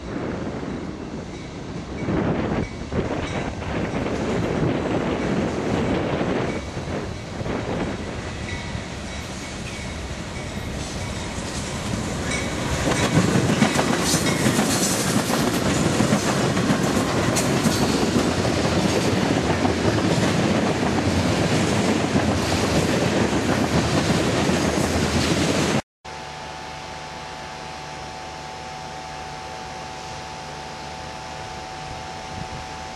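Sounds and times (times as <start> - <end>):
train wheels clattering over rails: 1.1 - 25.8.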